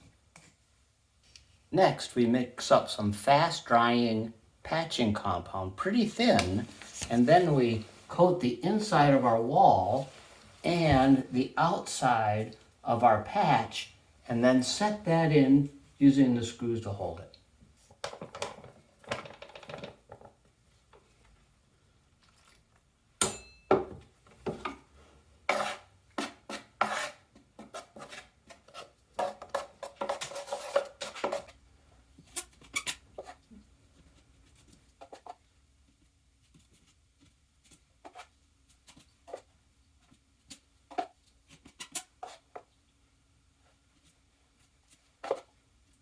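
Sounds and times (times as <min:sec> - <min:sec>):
knife scraping mixing container: 0:25.5 - 0:31.6.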